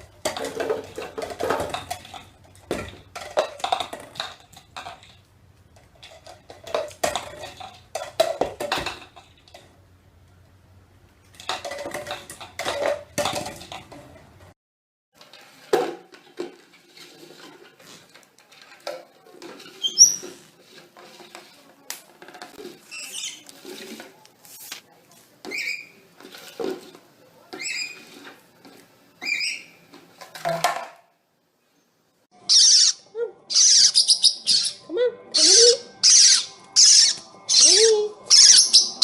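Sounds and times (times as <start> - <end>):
clatter of small hard objects: 0.0 - 9.7, 11.3 - 14.5
parrot squeaking: 19.8 - 20.3, 22.9 - 23.4, 29.2 - 29.8, 32.4 - 39.0.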